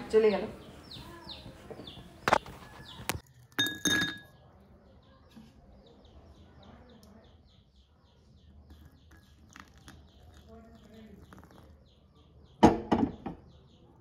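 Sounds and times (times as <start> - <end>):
faint high chirps: 0.7 - 12.6
glass or cup being struck: 3.6 - 4.3.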